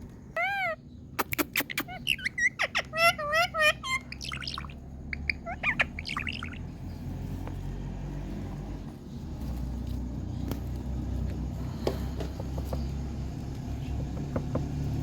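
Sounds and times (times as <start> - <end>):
parrot chirping: 0.3 - 7.1.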